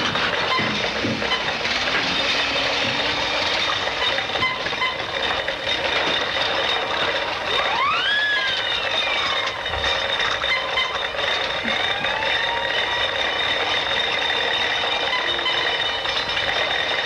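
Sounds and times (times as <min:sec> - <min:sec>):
steady mechanical noise: 0:00.0 - 0:17.0
whistle-like tone: 0:07.5 - 0:09.8.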